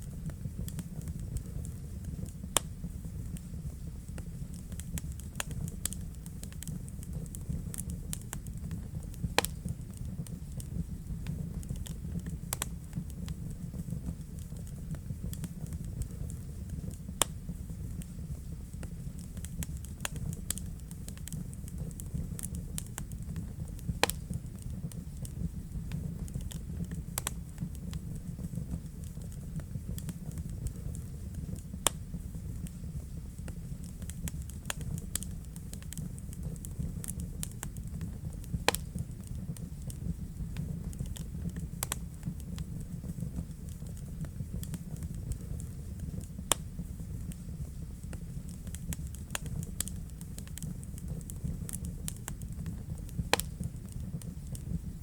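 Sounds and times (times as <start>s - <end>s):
fire crackling: 0.0s - 55.0s
low rumble of flames: 0.0s - 55.0s
sharp pops from burning logs: 0.0s - 55.0s.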